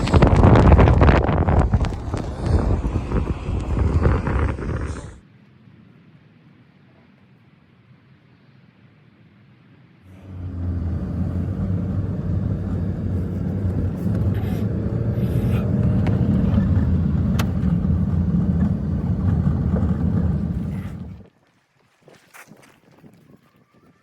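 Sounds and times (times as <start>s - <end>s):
engine humming: 0.0s - 5.2s, 10.1s - 21.3s.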